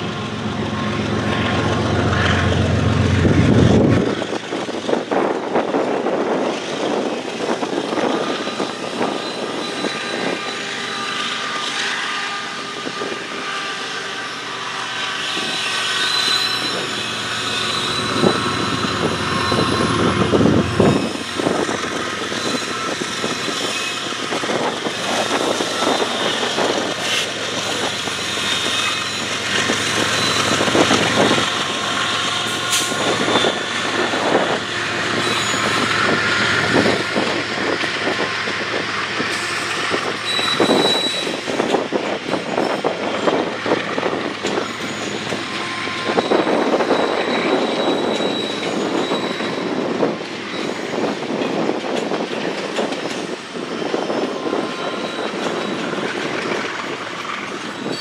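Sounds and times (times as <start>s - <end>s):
freight train rumbling on rails: 0.0s - 58.0s
thin high squeal: 12.2s - 37.3s, 39.2s - 41.6s, 44.5s - 49.7s.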